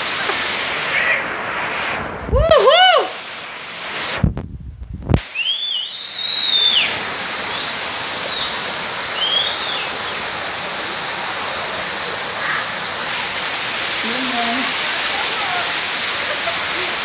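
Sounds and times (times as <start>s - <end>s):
heavy rain hissing: 0.0s - 17.0s
bird whistling call: 5.3s - 10.0s.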